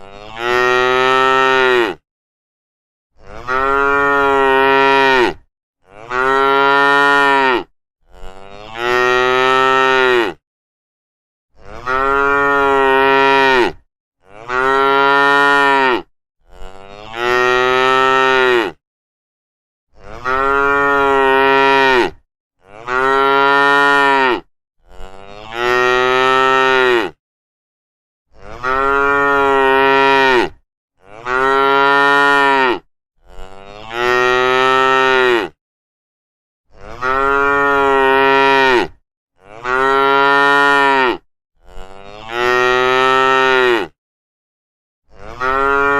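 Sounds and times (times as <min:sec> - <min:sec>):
cows mooing: 0:03.2 - 0:10.4, 0:11.6 - 0:18.8, 0:20.1 - 0:27.2, 0:28.4 - 0:35.6, 0:36.8 - 0:44.0, 0:45.2 - 0:45.9.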